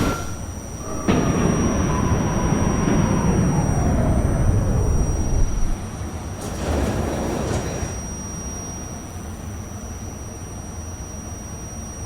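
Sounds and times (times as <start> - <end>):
subway car doors sliding open: 0.0 - 8.5
stopped train car humming: 0.0 - 11.2.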